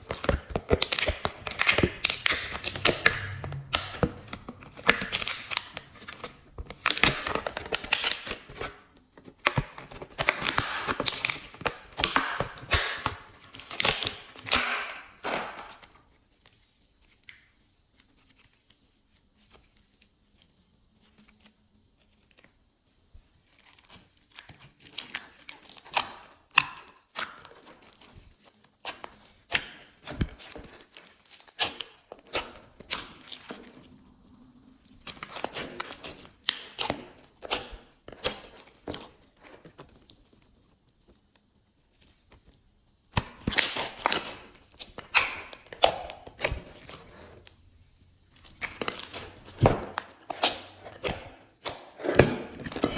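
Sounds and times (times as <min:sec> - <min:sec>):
slime crackling and popping: 0:00.0 - 0:06.2, 0:09.7 - 0:15.8, 0:43.1 - 0:47.6, 0:48.4 - 0:52.0.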